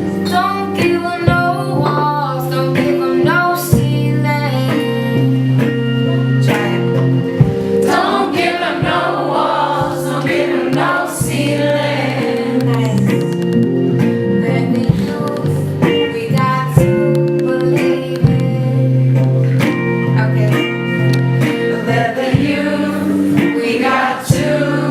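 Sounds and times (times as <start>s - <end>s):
guitar chords: 0.0s - 24.9s
woman singing: 0.2s - 5.4s, 6.4s - 7.0s, 9.8s - 13.4s, 14.4s - 19.4s.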